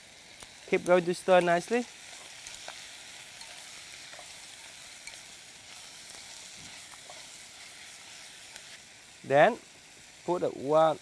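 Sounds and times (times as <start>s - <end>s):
chicken frying in hot oil: 0.0s - 11.0s
chopsticks ticking: 0.4s - 7.4s.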